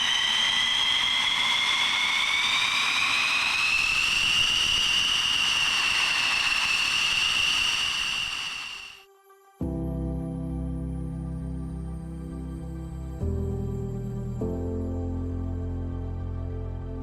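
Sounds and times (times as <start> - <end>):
jet engine whining: 0.0 - 9.0.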